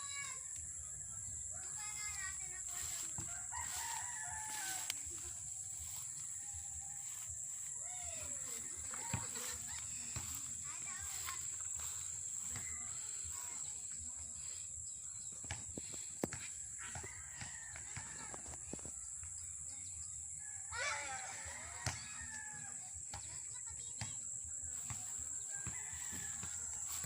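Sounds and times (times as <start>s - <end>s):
rooster crowing: 2.8s - 8.6s, 25.5s - 27.0s.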